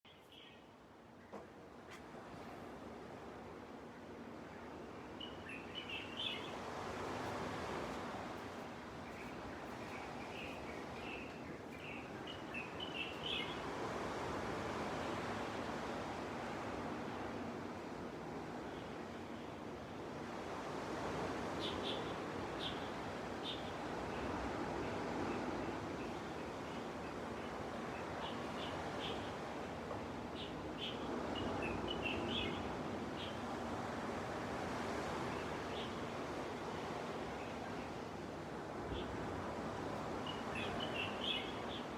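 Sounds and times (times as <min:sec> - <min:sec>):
gentle surf on a beach: 0:00.1 - 0:41.9
small birds chirping: 0:09.0 - 0:13.7, 0:40.2 - 0:41.9.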